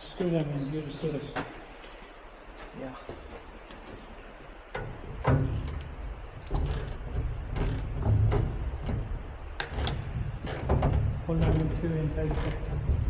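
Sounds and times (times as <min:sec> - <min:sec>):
sharp metallic clicks: 0:04.8 - 0:13.0.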